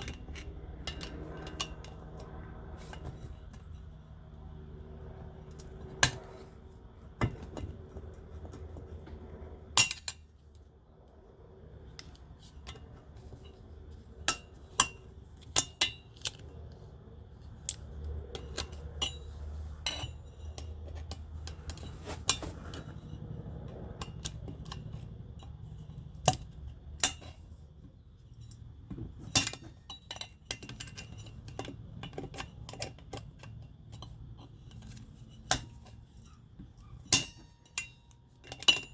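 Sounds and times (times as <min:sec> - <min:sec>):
metal tools clinking on metal: 0:00.0 - 0:04.1, 0:09.7 - 0:10.7, 0:12.0 - 0:16.5, 0:17.6 - 0:38.9.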